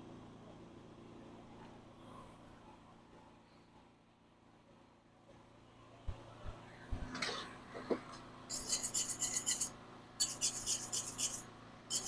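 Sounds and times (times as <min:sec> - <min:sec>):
rasping scrapes on steel: 0:08.5 - 0:12.0.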